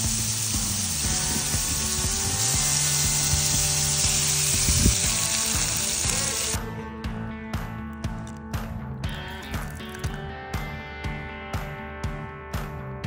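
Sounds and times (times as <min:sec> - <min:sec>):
food sizzling in hot oil: 0:00.0 - 0:06.6.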